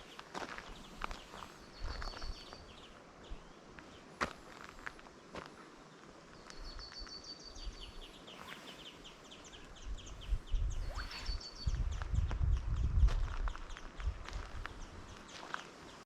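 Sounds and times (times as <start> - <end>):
songbird twittering: 0.0 - 4.1, 6.3 - 16.0.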